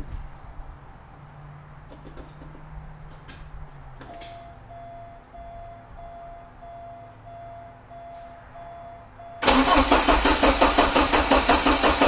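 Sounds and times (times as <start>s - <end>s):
faint repeating beep: 4.2s - 9.4s
car engine cranking: 9.4s - 12.0s.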